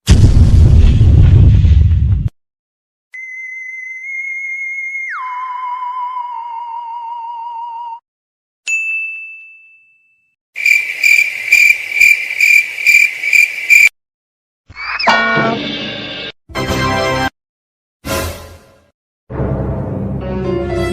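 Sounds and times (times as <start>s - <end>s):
bell-like ding: 8.7s - 10.3s
cricket chirping: 10.6s - 13.9s.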